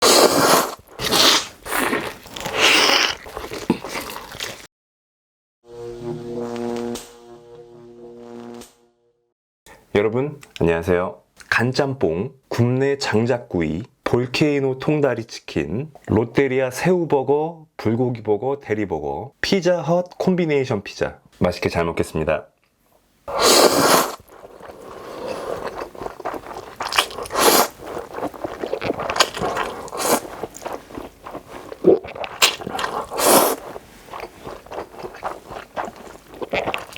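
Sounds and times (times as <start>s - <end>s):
crunchy chewing of food: 0.0s - 4.7s, 23.3s - 36.9s
music: 5.6s - 9.3s.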